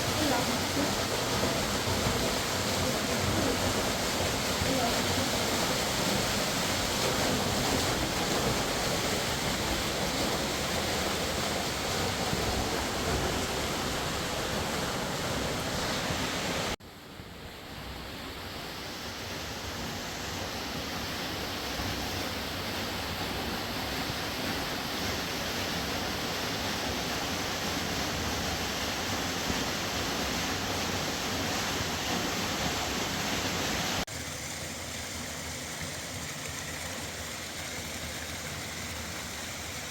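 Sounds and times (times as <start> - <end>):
fast-flowing river rushing: 0.0 - 16.8.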